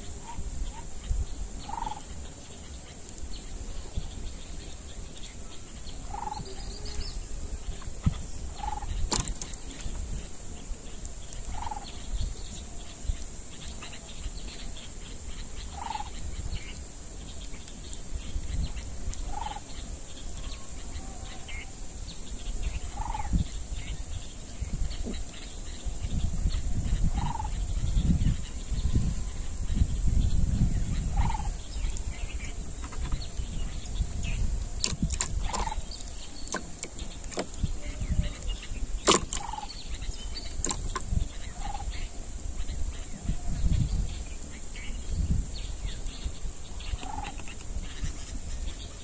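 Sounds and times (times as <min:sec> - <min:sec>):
bird calling: 0:00.0 - 0:29.6, 0:30.9 - 0:49.0
steady high hiss: 0:00.0 - 0:49.0
sharp click: 0:09.1 - 0:09.9, 0:34.8 - 0:35.7, 0:39.0 - 0:39.7, 0:40.6 - 0:41.1.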